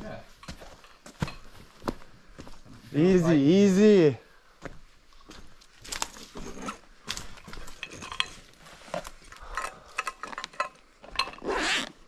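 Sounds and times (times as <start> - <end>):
hard objects clicking and clinking: 6.4 - 8.6, 9.2 - 11.6.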